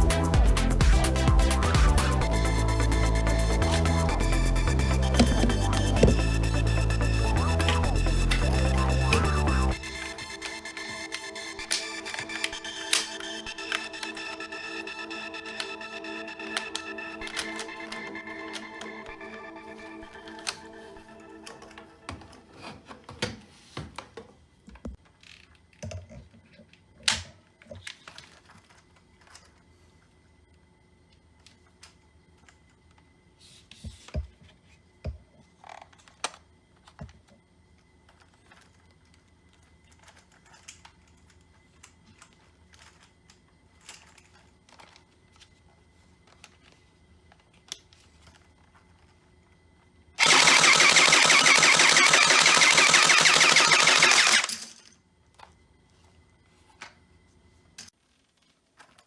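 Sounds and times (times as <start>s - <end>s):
toy gun firing full auto: 50.2s - 54.8s.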